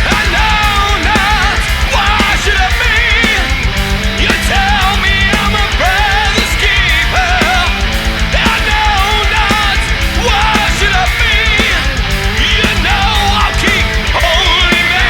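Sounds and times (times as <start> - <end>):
heavy metal music: 0.0 - 15.0.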